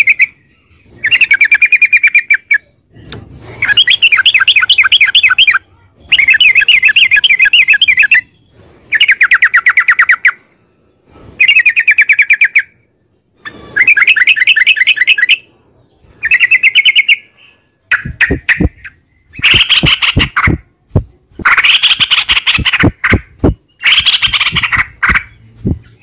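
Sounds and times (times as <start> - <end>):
bird singing rapid chirps: 0.0 - 26.0.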